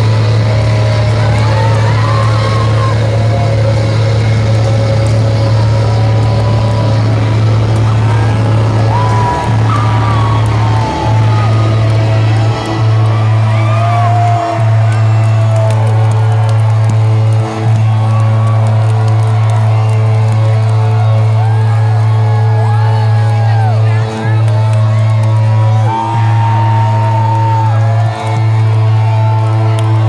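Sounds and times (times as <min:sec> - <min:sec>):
concert music with bass drone: 0:00.0 - 0:30.0
crowd cheering: 0:00.0 - 0:30.0
crowd whistling: 0:00.0 - 0:30.0.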